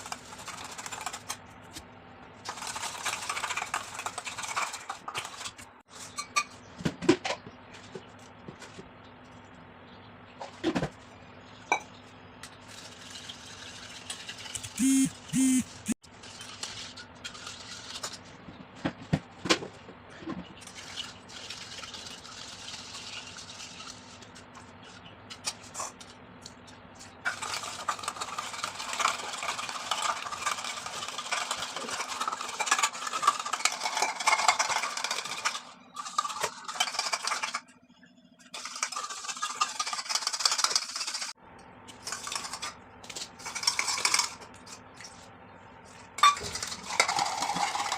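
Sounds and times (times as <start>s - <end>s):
spoon stirring and scraping in bowl: 2.5s - 6.6s, 23.2s - 37.6s.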